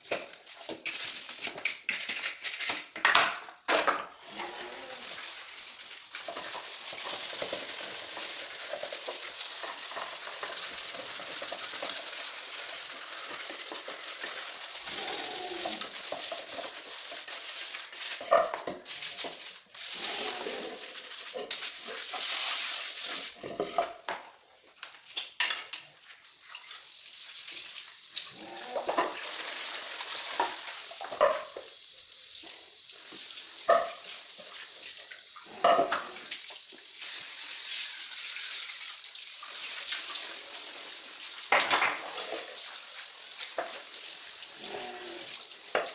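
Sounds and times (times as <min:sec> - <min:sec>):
loofah crackling and rustling scrape: 0:04.4 - 0:23.4.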